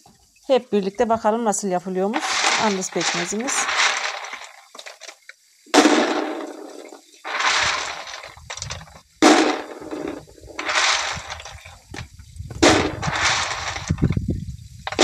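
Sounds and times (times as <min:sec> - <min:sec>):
sharp blows: 0:05.7 - 0:08.4, 0:09.2 - 0:11.4.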